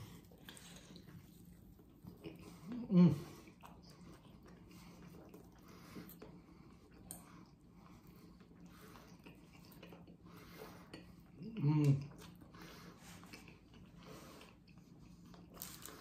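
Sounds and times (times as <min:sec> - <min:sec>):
person chewing food: 0:00.0 - 0:16.0
short hummed vocal sound: 0:02.4 - 0:03.4, 0:11.4 - 0:12.2.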